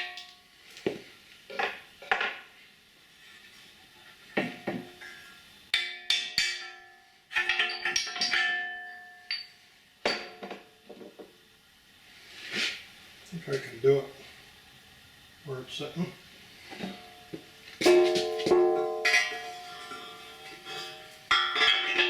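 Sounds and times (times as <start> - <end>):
sharp ringing metal knocks: 5.7 - 10.6, 17.0 - 22.0
heavy steel parts clanking: 5.8 - 9.5, 17.8 - 22.0.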